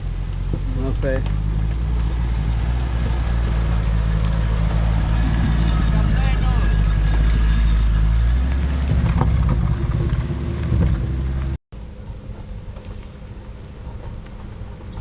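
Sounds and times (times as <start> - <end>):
car engine running: 0.0 - 11.6.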